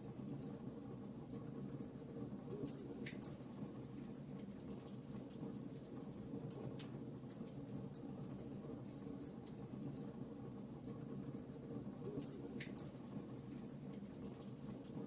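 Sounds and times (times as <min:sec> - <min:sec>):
wood fire crackling and popping: 0:10.9 - 0:15.0.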